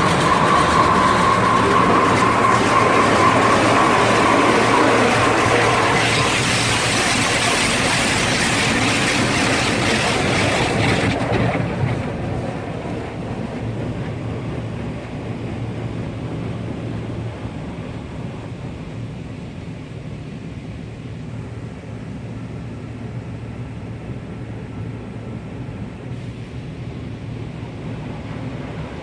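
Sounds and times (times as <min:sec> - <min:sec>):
car wash rushing hiss: 0:00.0 - 0:11.6
machinery rumble with low hum: 0:00.0 - 0:29.0.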